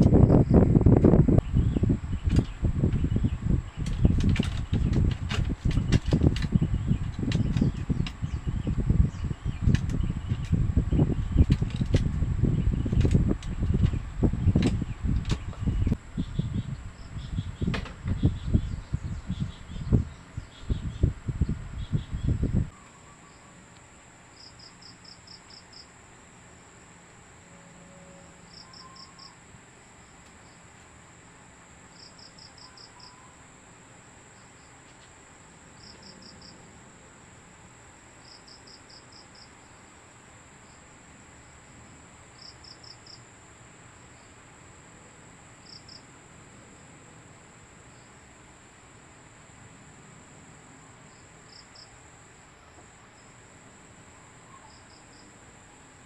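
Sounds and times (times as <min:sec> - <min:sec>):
cricket chirping: 0:00.0 - 0:56.0
high-pitched insect drone: 0:27.4 - 0:29.5.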